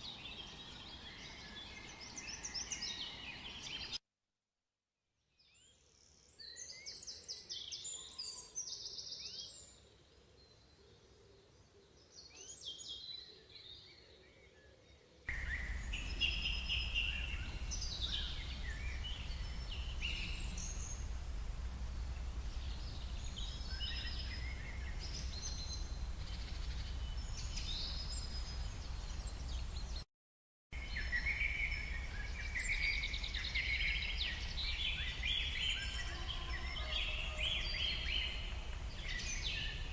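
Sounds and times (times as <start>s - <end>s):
small birds chirping: 0.0s - 4.0s, 5.4s - 30.0s, 30.8s - 39.9s
steady low rumble: 15.3s - 28.1s.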